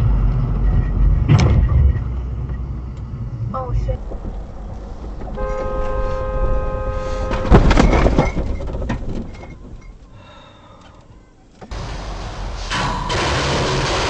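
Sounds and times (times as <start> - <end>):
vehicle horn blaring: 5.3 - 7.8
debris clattering: 11.7 - 14.0.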